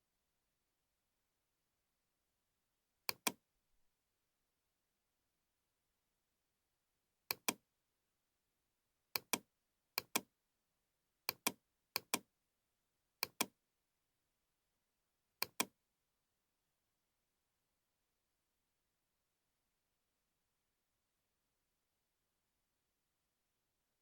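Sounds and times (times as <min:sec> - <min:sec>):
computer mouse double-clicking: 0:03.1 - 0:03.4, 0:07.3 - 0:07.6, 0:09.2 - 0:09.4, 0:10.0 - 0:10.2, 0:11.3 - 0:12.2, 0:13.2 - 0:13.5, 0:15.4 - 0:15.7.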